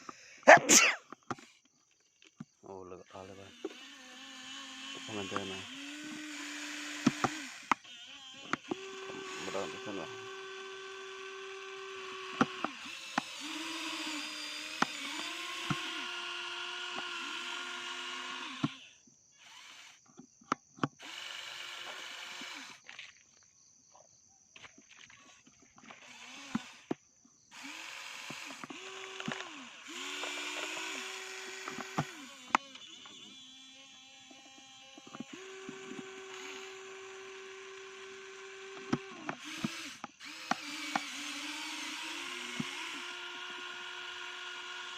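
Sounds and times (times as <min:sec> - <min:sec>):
toy truck motor whining: 0:00.0 - 0:01.7, 0:03.0 - 0:23.0, 0:25.1 - 0:44.9.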